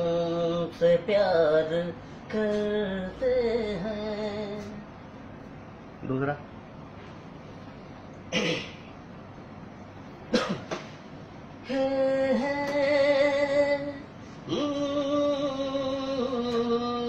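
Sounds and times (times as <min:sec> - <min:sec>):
man singing wordless notes: 0:00.0 - 0:04.8, 0:11.6 - 0:17.0.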